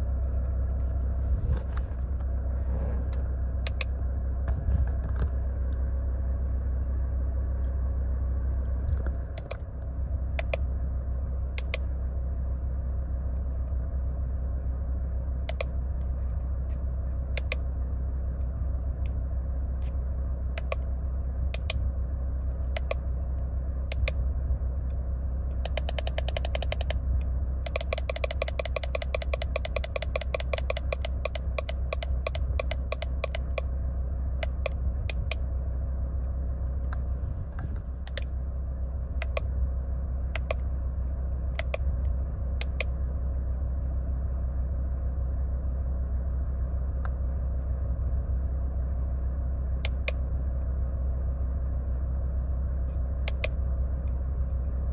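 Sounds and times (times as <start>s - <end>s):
car low hum: 0.0s - 54.9s
sharp clicks: 3.6s - 3.9s, 9.4s - 9.6s, 10.4s - 10.7s, 11.6s - 11.8s, 15.5s - 15.7s, 17.4s - 17.6s, 20.6s - 20.9s, 21.5s - 21.8s, 22.7s - 23.0s, 23.9s - 24.2s, 25.6s - 27.0s, 27.6s - 33.7s, 34.4s - 35.4s, 38.0s - 38.3s, 39.2s - 39.5s, 40.3s - 40.7s, 41.6s - 41.9s, 42.6s - 42.9s, 53.3s - 53.6s.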